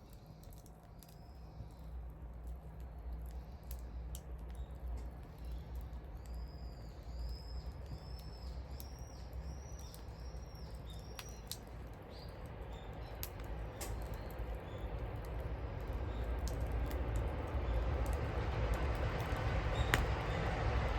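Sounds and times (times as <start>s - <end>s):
wood bonfire crackling: 0.0s - 20.9s
bird singing whistled notes: 5.4s - 11.5s.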